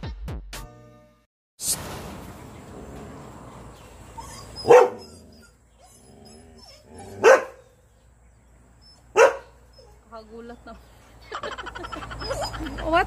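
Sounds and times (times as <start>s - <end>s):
dog barking: 4.6s - 5.2s, 7.1s - 7.7s, 9.1s - 9.6s.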